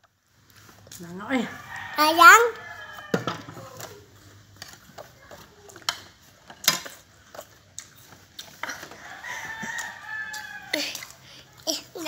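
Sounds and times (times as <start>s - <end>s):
fruit crunching while chewed: 3.8s - 11.2s.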